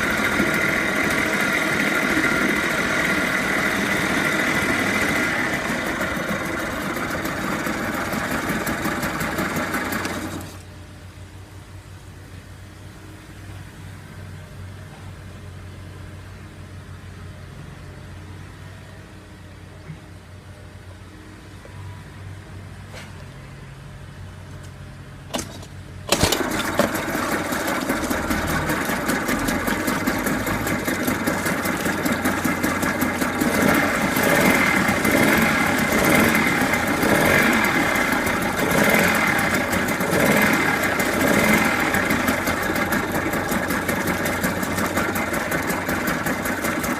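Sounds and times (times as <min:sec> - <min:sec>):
outboard motor running: 0:00.0 - 0:10.7, 0:26.1 - 0:46.9.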